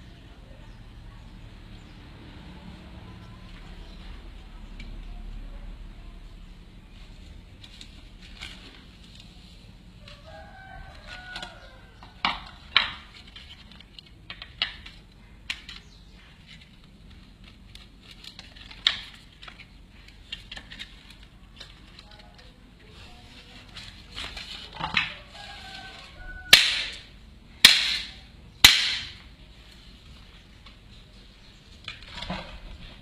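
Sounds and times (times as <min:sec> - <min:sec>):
low background noise: 0:00.0 - 0:33.0
chicken calling: 0:25.1 - 0:27.1.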